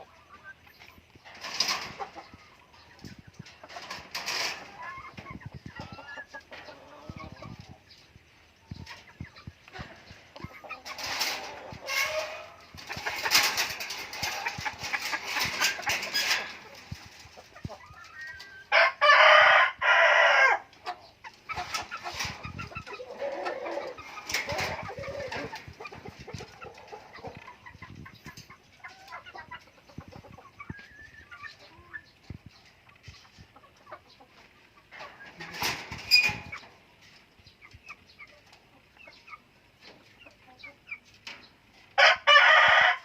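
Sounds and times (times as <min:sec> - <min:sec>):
chickens clucking: 0:00.0 - 0:43.0
rooster crowing: 0:42.0 - 0:43.0.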